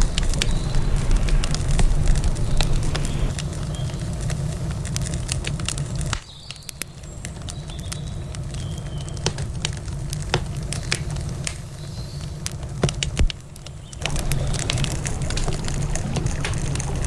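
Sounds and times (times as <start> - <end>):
low steady rumble: 0.0 - 6.0, 14.0 - 17.0
wood campfire crackling: 0.0 - 17.0.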